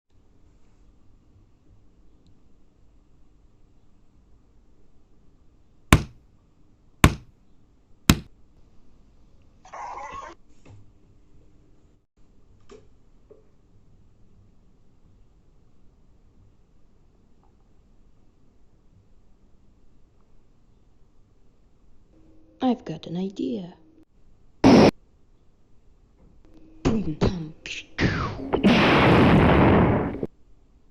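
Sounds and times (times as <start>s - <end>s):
sharp knocks: 5.9s - 6.2s, 7.0s - 7.3s
hissing noise: 24.6s - 24.9s
loud distorted noise blast: 24.6s - 24.9s, 28.0s - 30.3s
loud noise blast: 24.6s - 24.9s, 28.0s - 30.3s.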